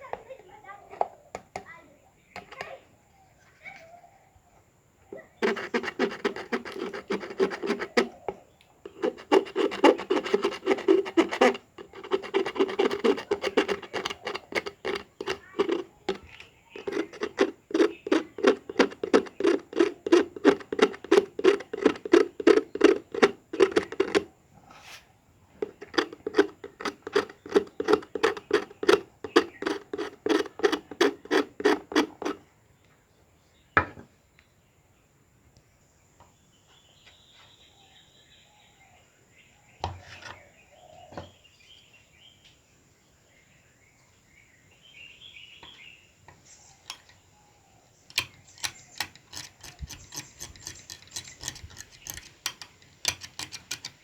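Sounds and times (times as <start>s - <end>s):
hand abrading strokes: 5.4s - 24.3s, 25.6s - 32.4s.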